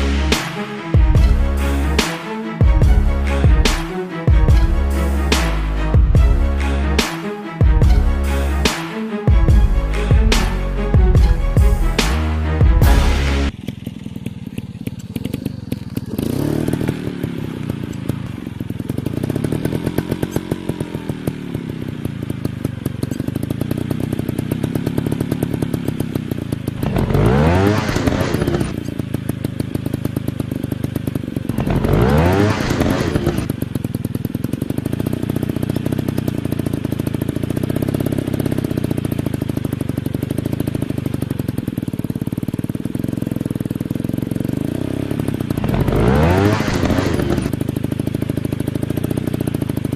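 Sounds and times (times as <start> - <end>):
dirt bike engines revving: 0.0 - 22.0, 26.7 - 28.9, 31.4 - 33.6, 44.4 - 47.6.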